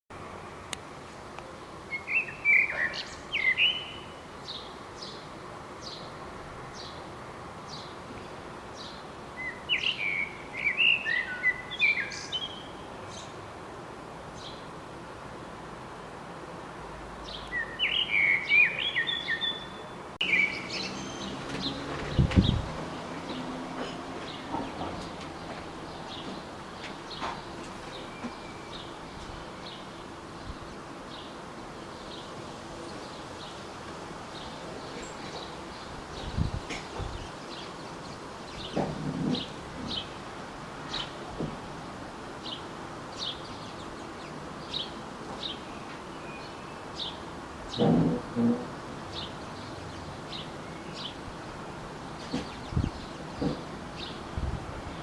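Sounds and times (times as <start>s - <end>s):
steady background hiss: 0.2s - 55.0s
small birds chirping: 1.8s - 13.4s, 17.2s - 41.4s, 42.4s - 55.0s.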